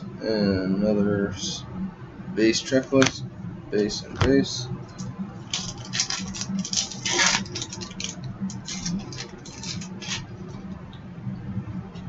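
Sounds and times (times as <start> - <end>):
foil wrapper rustling and crinkling: 5.4 - 10.3.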